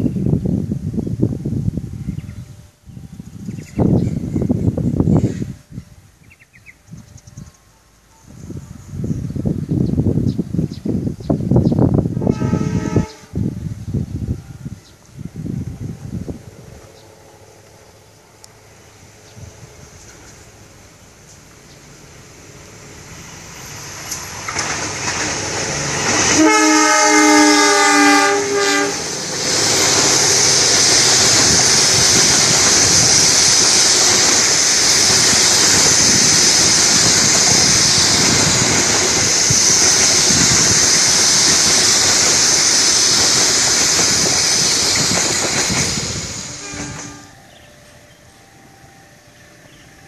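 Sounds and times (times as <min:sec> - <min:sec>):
train wheels rumbling on rails: 0:08.3 - 0:50.0
locomotive horn: 0:12.2 - 0:13.4, 0:26.0 - 0:29.2, 0:46.6 - 0:49.4
high hiss: 0:15.0 - 0:47.7.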